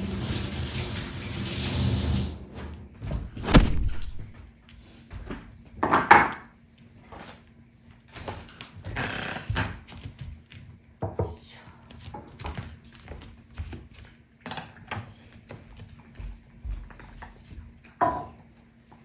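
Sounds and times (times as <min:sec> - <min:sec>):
household knocks: 0:03.4 - 0:04.4.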